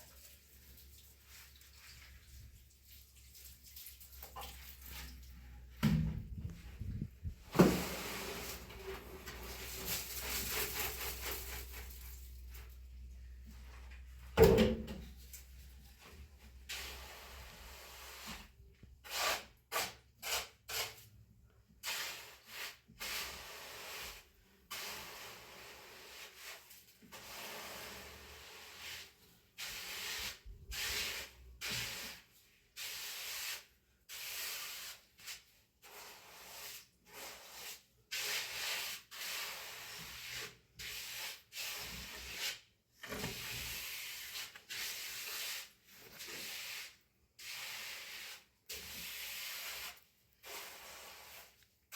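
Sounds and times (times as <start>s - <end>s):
trowel scraping cement: 16.7s - 21.2s, 21.8s - 51.6s.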